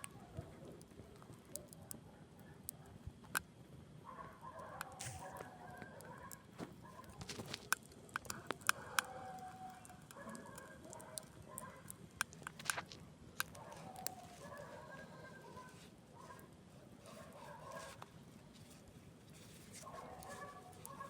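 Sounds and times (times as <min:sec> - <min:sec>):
campfire crackling and popping: 0:00.0 - 0:03.9, 0:04.7 - 0:14.8.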